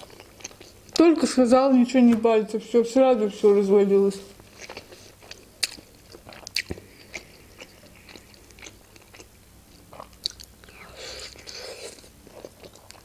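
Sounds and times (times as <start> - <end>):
wet mouth chewing smacks: 4.6 - 13.0.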